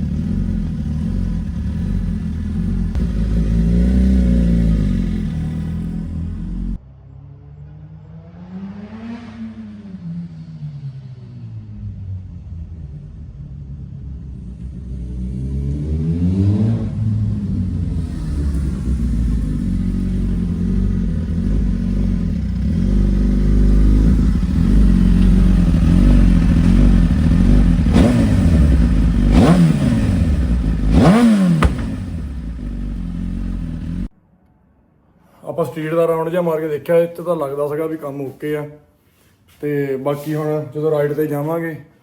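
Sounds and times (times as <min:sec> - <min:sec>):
motorcycle engine revving: 0:00.0 - 0:06.8, 0:08.0 - 0:11.0, 0:14.6 - 0:34.1.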